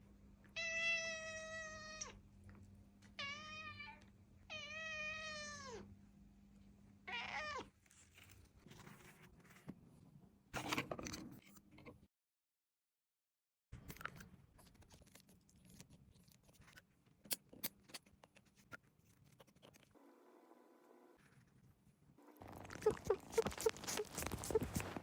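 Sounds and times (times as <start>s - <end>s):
cat meowing: 0.6s - 2.2s, 3.2s - 5.9s, 7.1s - 7.7s
rustling: 22.4s - 25.0s.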